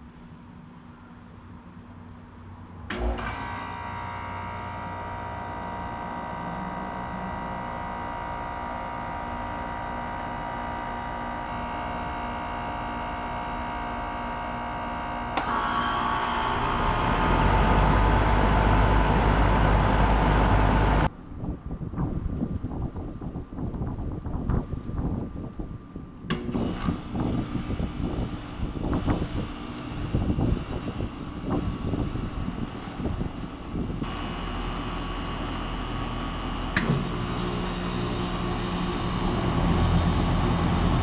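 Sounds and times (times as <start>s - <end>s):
air conditioner unit humming: 0.0s - 41.0s
deep rumble: 16.1s - 24.4s, 37.3s - 41.0s.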